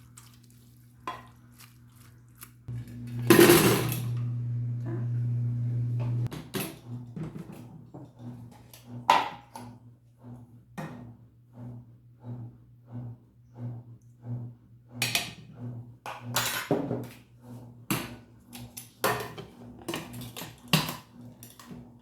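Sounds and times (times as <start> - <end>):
faint low pulsing hum: 3.9 - 6.3
dishes and cutlery clattering: 16.1 - 17.1, 18.7 - 21.8.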